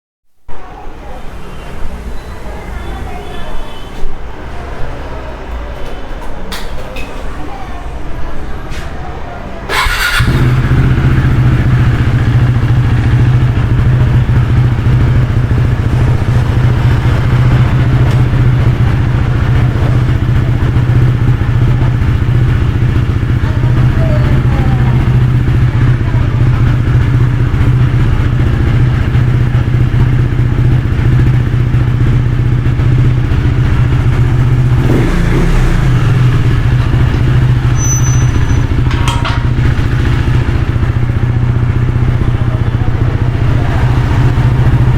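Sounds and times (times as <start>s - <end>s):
motorcycle engine idling: 9.7s - 44.9s.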